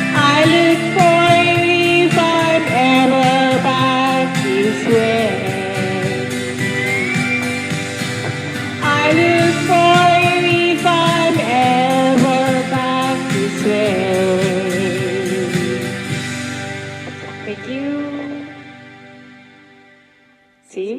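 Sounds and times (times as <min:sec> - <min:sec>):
strummed acoustic guitar: 0:00.0 - 0:19.8
person singing long notes: 0:00.1 - 0:07.6, 0:08.3 - 0:16.0.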